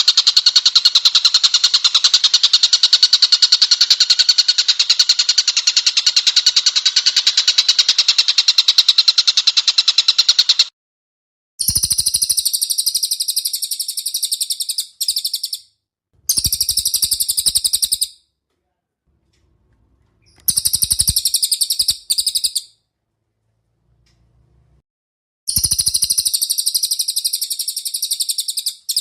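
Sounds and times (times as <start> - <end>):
bird calling in high trills: 11.6 - 15.7, 16.3 - 18.2, 20.2 - 22.8, 25.5 - 29.0.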